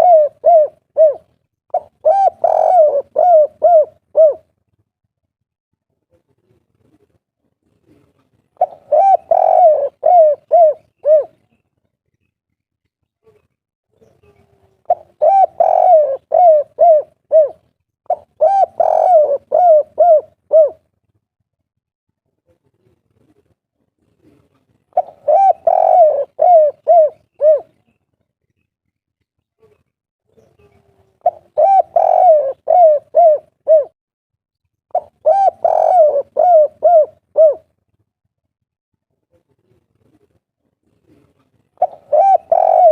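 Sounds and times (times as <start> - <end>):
dove cooing: 0.0 - 4.5, 7.9 - 11.6, 14.8 - 20.8, 24.2 - 27.9, 30.5 - 34.0, 34.9 - 37.7, 41.0 - 42.9.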